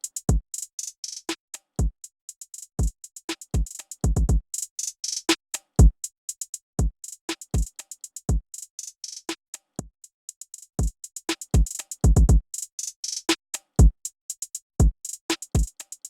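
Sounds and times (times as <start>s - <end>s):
drum machine loop: 2.5s - 4.9s, 6.8s - 9.2s, 10.5s - 15.9s.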